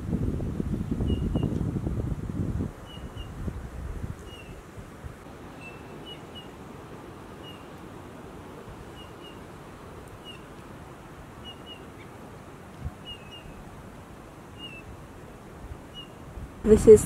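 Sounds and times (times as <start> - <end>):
wind rushing: 0.0 - 5.3
small bird chirping: 2.8 - 3.4, 4.2 - 4.6, 5.6 - 6.6, 7.4 - 7.8, 8.9 - 9.5, 11.4 - 12.2, 13.0 - 13.6, 14.5 - 14.9.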